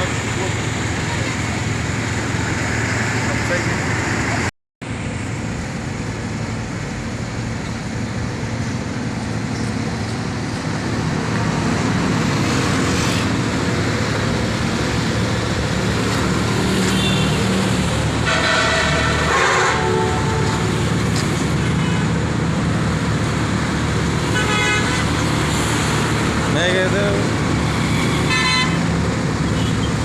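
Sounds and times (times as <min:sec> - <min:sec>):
road traffic noise: 0:00.0 - 0:30.0
vehicle horn: 0:16.7 - 0:17.6, 0:18.2 - 0:20.7, 0:21.6 - 0:22.2, 0:24.3 - 0:25.1, 0:28.0 - 0:28.9, 0:29.6 - 0:30.0.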